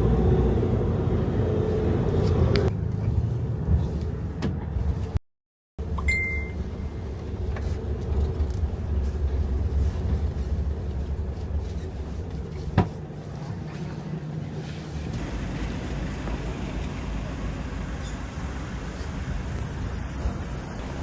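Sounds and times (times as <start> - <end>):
moving vehicle rumble: 0.0 - 5.2, 5.8 - 21.0
short high beep: 6.0 - 6.6.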